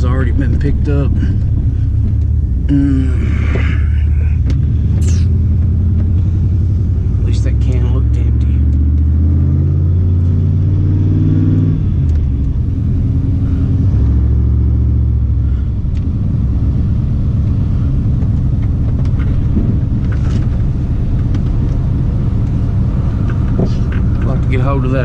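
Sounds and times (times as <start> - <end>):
road noise: 0.0 - 25.0
truck engine drone: 0.0 - 25.0.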